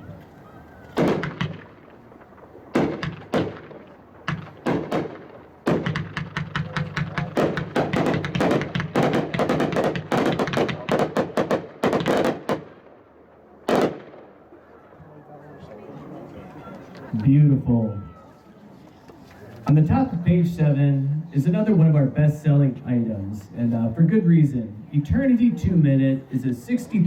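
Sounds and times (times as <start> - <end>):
fireworks shots and bursts: 0.9 - 14.4.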